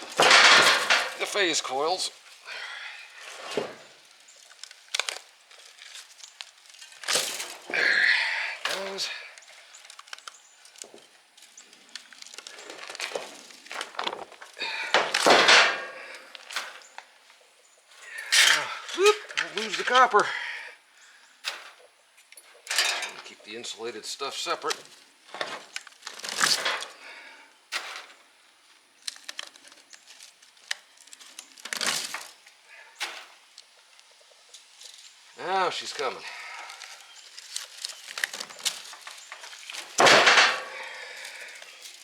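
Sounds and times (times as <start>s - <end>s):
copper wire scraping and clinking: 0.0s - 1.6s, 21.5s - 23.4s
wire and insulation scraping: 0.0s - 2.4s, 3.0s - 17.2s, 17.9s - 20.2s, 21.1s - 42.0s.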